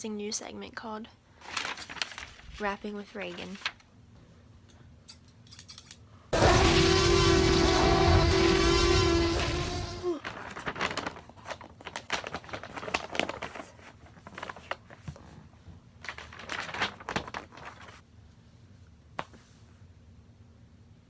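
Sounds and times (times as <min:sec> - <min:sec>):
crinkling and rustling: 0:01.4 - 0:03.9, 0:10.1 - 0:18.0.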